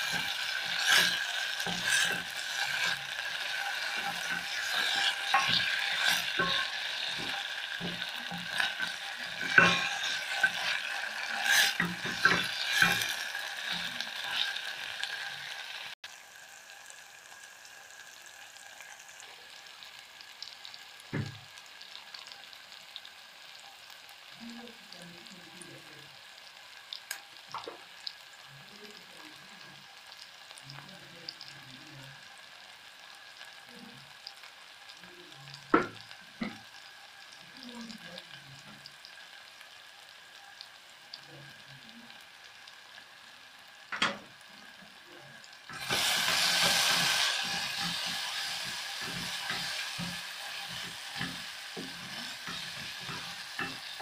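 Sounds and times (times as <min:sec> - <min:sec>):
spatula scraping pot: 0:00.0 - 0:15.4, 0:45.7 - 0:54.0
vegetables sizzling in oil: 0:00.0 - 0:54.0.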